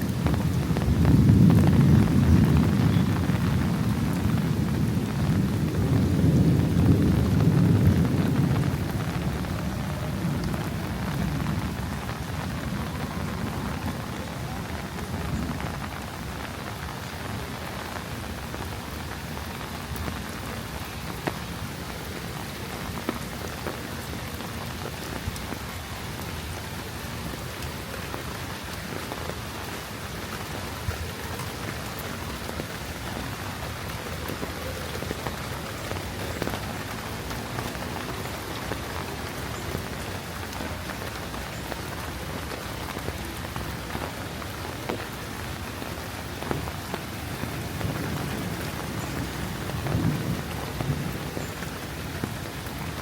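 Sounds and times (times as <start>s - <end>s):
low thunder rumble: 0.0s - 18.9s, 46.3s - 53.0s
rain on hard surfaces: 0.0s - 53.0s.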